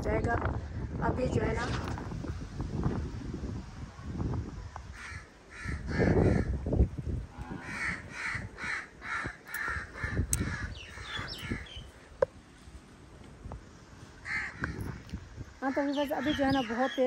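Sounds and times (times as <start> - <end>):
wind buffeting microphone: 0.0 - 17.0
bird harsh repeated calls: 5.0 - 6.6, 7.5 - 11.9, 14.2 - 14.9, 15.6 - 17.0.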